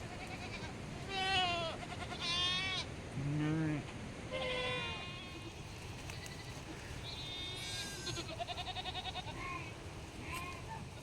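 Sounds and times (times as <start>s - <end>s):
livestock bleating: 0.1s - 3.8s, 7.2s - 10.6s.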